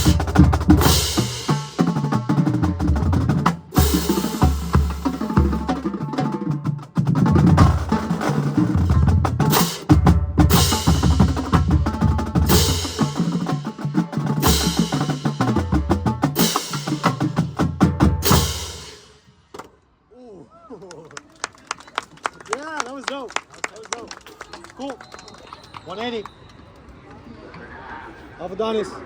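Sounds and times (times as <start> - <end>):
bass drums: 0.0 - 19.0
snare and tenor drums: 0.0 - 19.7.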